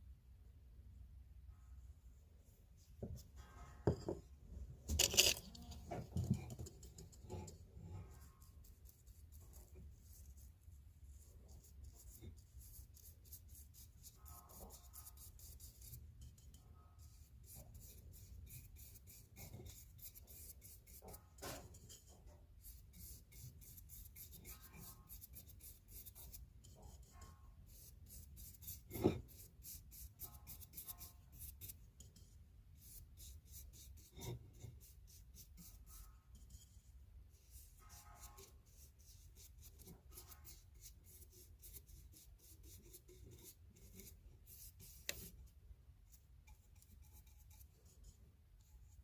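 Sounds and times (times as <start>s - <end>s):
knock: 3.9s - 4.2s
rapid scratching on steel: 4.9s - 10.5s, 11.4s - 45.4s, 46.1s - 49.0s.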